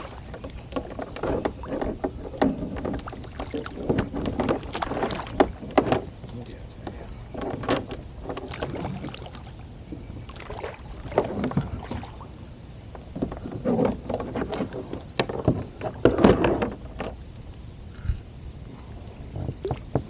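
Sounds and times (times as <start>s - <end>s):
water splashes: 0.0s - 0.6s, 2.8s - 5.7s, 8.4s - 9.7s, 10.3s - 12.4s.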